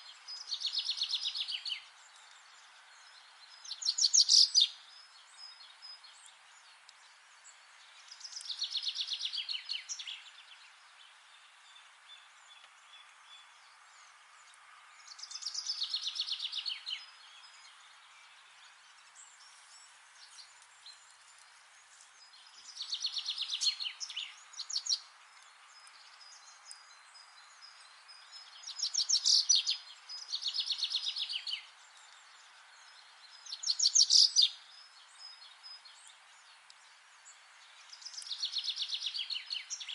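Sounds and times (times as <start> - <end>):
faint background hiss: 0.0 - 39.9
songbird trilling: 3.7 - 4.8, 28.6 - 31.7, 33.5 - 34.6.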